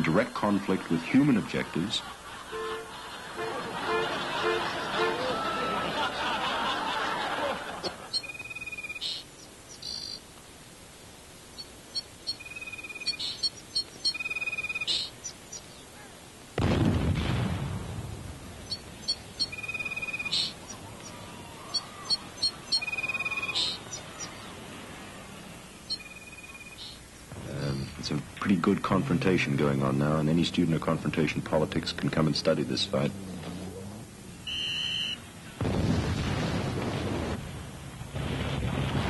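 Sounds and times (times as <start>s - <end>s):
birds chirping with trills: 7.6s - 10.4s, 11.1s - 16.2s, 18.5s - 35.5s
loud rumbling burst: 16.6s - 18.7s, 35.6s - 39.0s.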